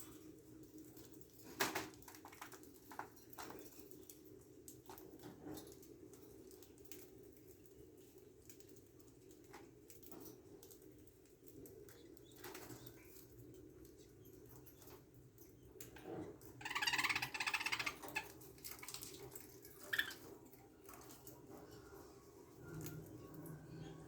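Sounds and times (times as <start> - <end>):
birds fluttering wings: 0.9 - 4.2.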